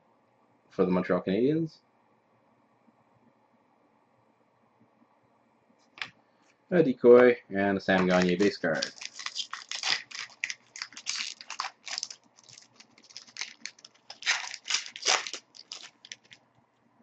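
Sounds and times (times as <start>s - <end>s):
card wrapper crinkling: 7.9s - 16.4s
wrapper ripping: 8.0s - 16.4s.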